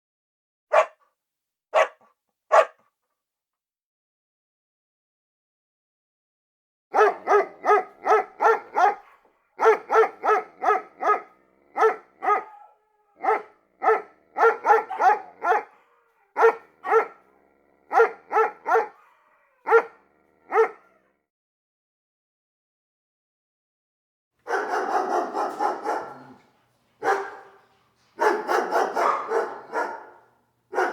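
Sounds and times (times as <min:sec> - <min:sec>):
dog barking: 0:00.7 - 0:01.0, 0:01.7 - 0:02.9, 0:06.9 - 0:21.1, 0:24.5 - 0:30.9.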